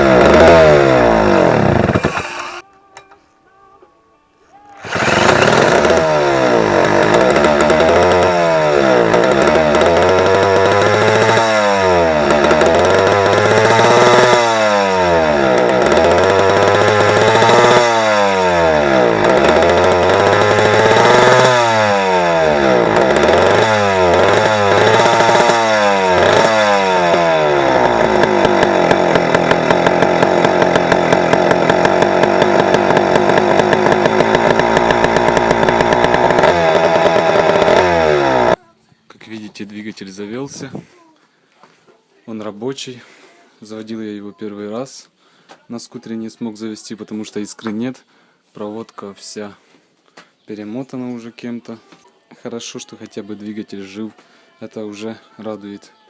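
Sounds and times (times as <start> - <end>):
scooter engine revving and idling: 0.0 - 2.6, 4.8 - 38.6.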